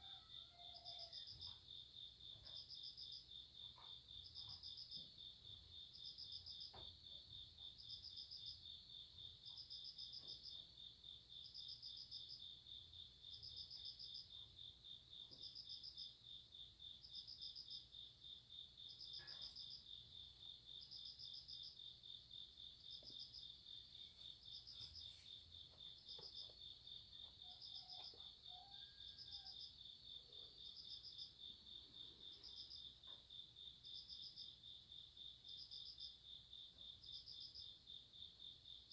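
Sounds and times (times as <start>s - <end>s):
cricket trilling: 18.8s - 36.2s.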